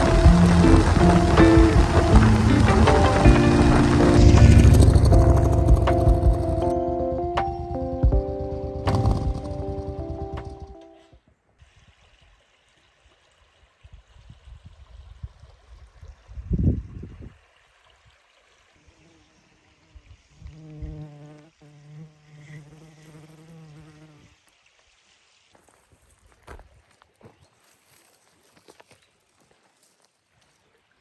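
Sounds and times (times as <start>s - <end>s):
dull low thumps: 0.0s - 10.7s
flying insect buzzing: 18.8s - 24.4s.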